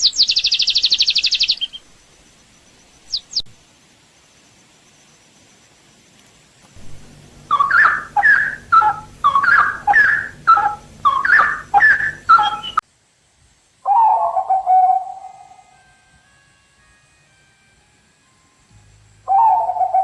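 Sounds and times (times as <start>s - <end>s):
bird calling sweeping notes: 6.8s - 12.8s, 19.3s - 20.0s
drawn-out hooting note: 6.8s - 12.8s.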